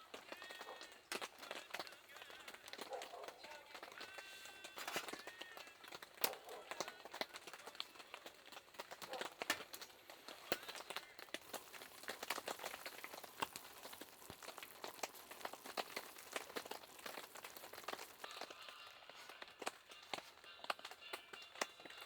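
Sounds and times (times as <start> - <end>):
raindrops ticking on tarp: 0.0 - 22.0
rain hiss: 9.3 - 18.6.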